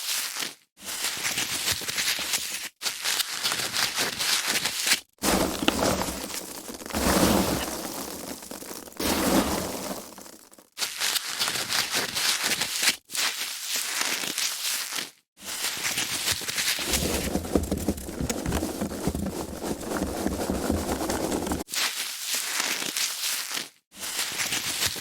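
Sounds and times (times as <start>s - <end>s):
foam packaging crackling: 5.2s - 10.8s, 16.7s - 21.7s.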